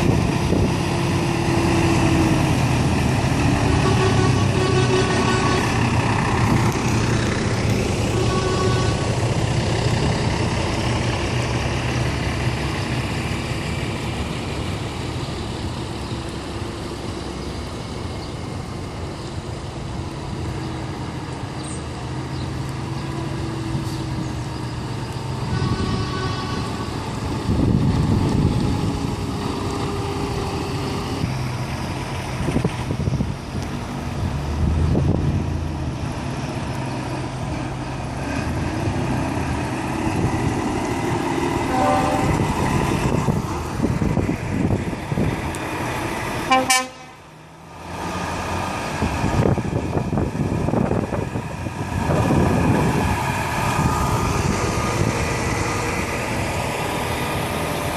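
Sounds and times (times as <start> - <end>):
truck diesel engines: 0.0 - 57.9
multi-tone air horn: 3.7 - 5.8, 8.1 - 9.1, 25.5 - 27.0, 41.7 - 42.4, 46.5 - 47.2.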